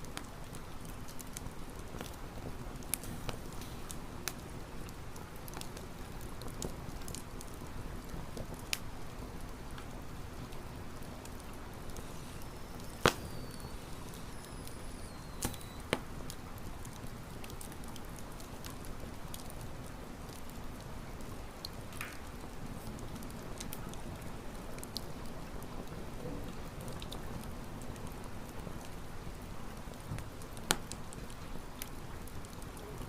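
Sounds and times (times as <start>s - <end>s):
campfire crackling: 0.0s - 33.0s
sharp pops of fire: 11.3s - 17.7s, 30.1s - 31.1s
thin falling whistles: 12.0s - 15.9s.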